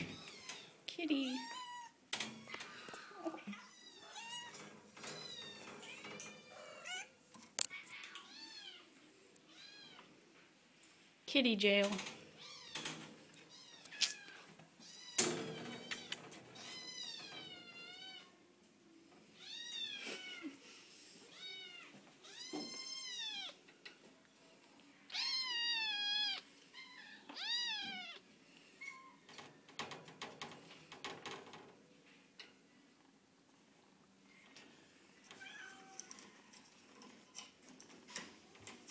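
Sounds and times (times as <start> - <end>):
cats meowing: 0.0 - 10.2, 12.3 - 18.4, 19.2 - 20.6, 21.2 - 23.7, 25.0 - 29.3, 35.3 - 36.7.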